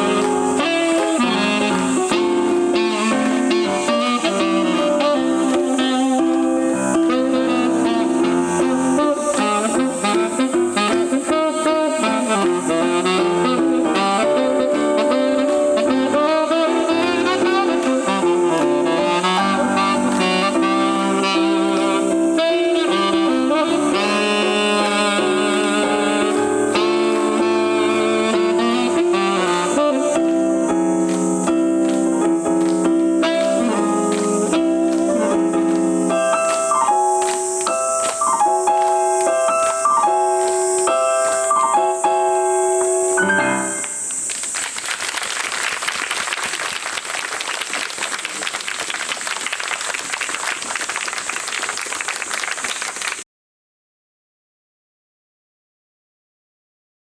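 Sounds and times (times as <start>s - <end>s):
audience applause: 0.0s - 4.9s, 44.2s - 53.2s
live jazz band with piano: 0.0s - 45.5s.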